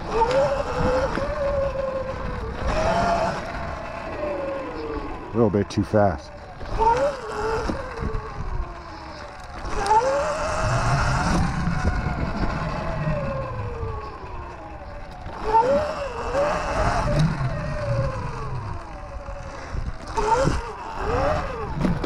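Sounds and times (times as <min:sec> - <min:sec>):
electric motorbike motor whining: 0:00.0 - 0:22.0
low rumble: 0:07.8 - 0:22.0.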